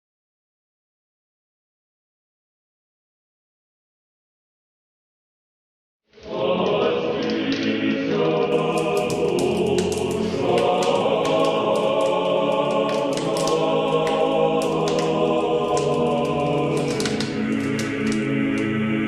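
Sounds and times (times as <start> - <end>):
choir singing: 6.2 - 19.0.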